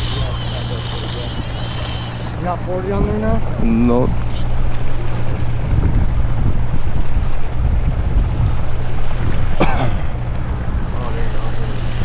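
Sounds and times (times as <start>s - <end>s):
boat engine humming: 0.0s - 12.0s
water rushing past hull: 0.0s - 12.0s
wind buffeting microphone: 0.0s - 12.0s.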